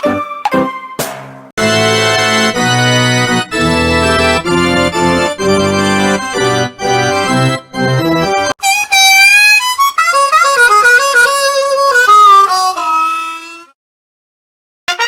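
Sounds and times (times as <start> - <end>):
organ playing sustained chords: 1.6 - 8.5.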